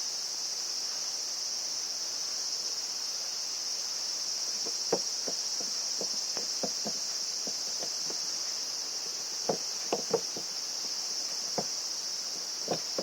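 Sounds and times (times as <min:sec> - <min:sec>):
insects chirring: 0:00.5 - 0:13.0.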